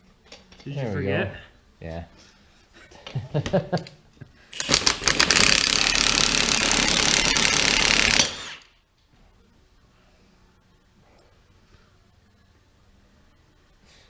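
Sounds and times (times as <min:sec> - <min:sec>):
impact wrench hammering: 0:04.6 - 0:08.7.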